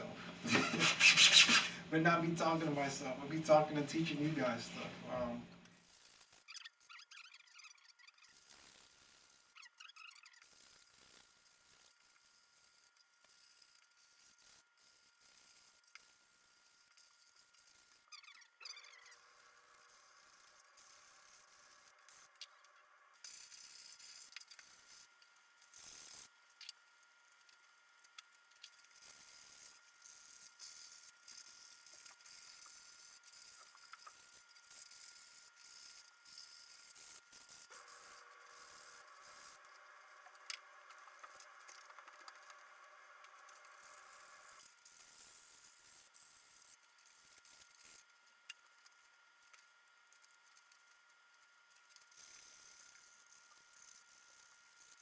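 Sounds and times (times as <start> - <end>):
sandpaper scratching plastic: 0.1 - 4.9.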